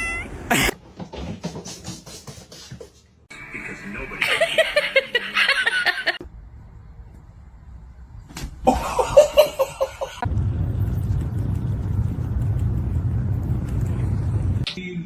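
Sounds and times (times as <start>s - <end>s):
person laughing: 4.2s - 6.2s, 8.6s - 10.2s
low rumble: 10.2s - 14.7s.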